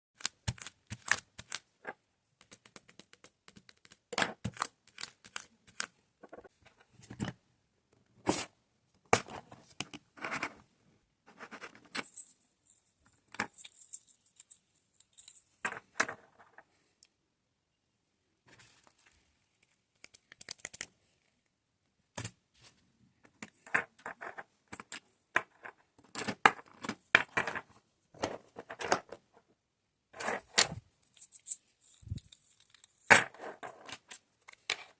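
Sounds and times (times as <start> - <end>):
plastic tools clicking and rattling: 30.2 - 34.9.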